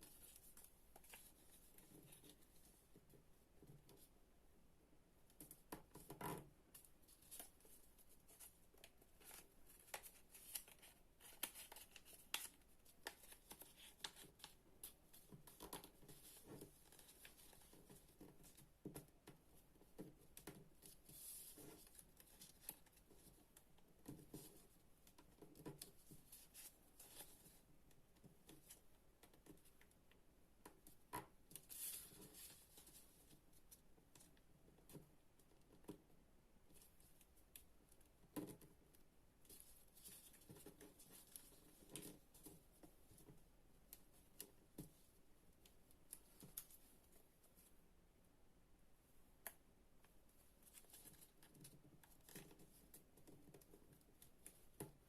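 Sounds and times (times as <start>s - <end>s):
paper rustling and creasing: 7.1s - 18.6s.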